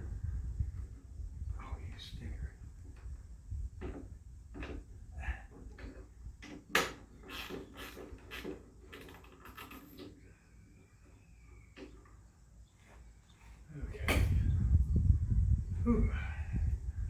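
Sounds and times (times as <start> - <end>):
clicks and knocks of metal and wood: 2.8 - 10.3, 11.0 - 14.4.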